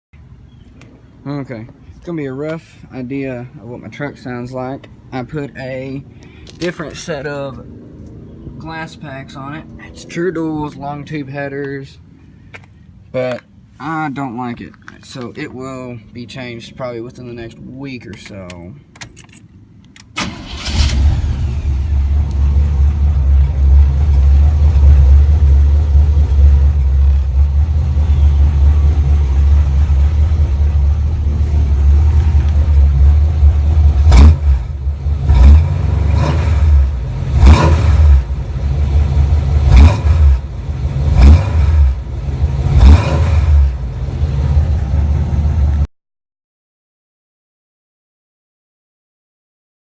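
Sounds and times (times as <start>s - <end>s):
raspy truck engine idling and revving: 20.3s - 45.9s.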